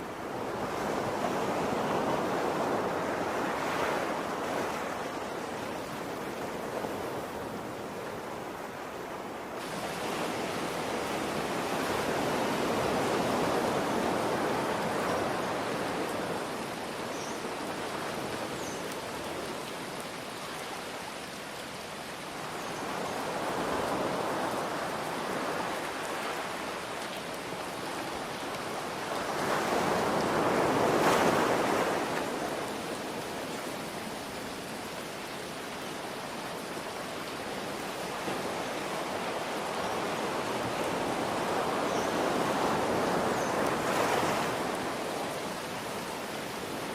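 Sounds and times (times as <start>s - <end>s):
ocean waves breaking: 0.0s - 20.3s, 22.4s - 34.8s
rain hiss: 0.0s - 46.9s.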